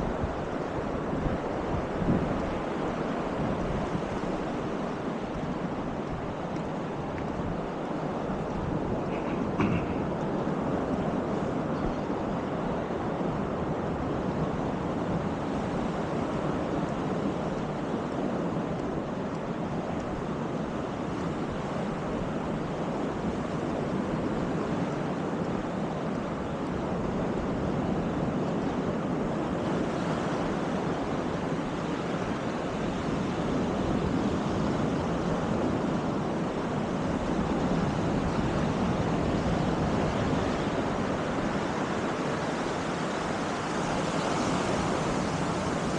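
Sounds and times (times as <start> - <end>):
surf washing onto beach: 0.0 - 45.9
wind buffeting microphone: 0.0 - 45.9.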